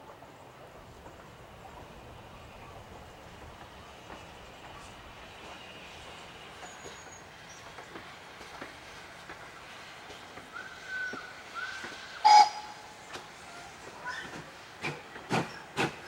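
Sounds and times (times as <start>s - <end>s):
distant steam train rumbling: 0.0s - 16.0s
high-pitched train whistle toot: 10.6s - 13.0s.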